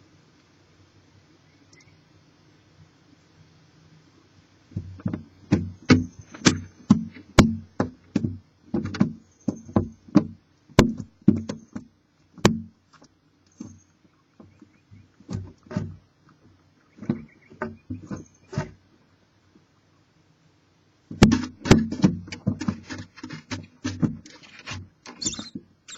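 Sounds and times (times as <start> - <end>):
knocks on wooden nest box: 4.8 - 11.6, 12.4 - 12.7, 21.1 - 24.2.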